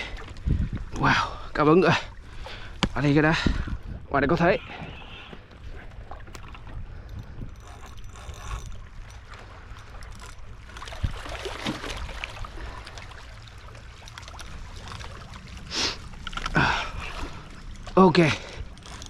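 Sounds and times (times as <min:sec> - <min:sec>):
wind noise: 0:00.0 - 0:01.6, 0:02.4 - 0:12.8
water: 0:00.0 - 0:19.0
fishing reel clicking and whirring: 0:04.6 - 0:11.2, 0:17.6 - 0:19.0.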